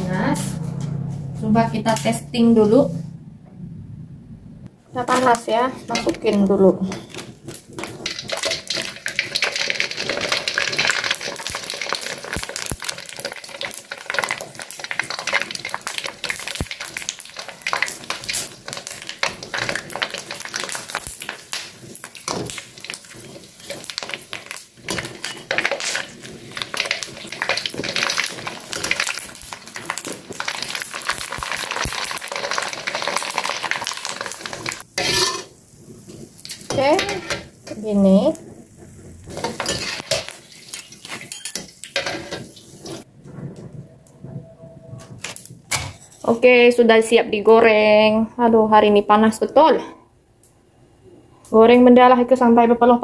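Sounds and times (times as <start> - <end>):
tofu skin deep-frying in oil: 5.0 - 43.1.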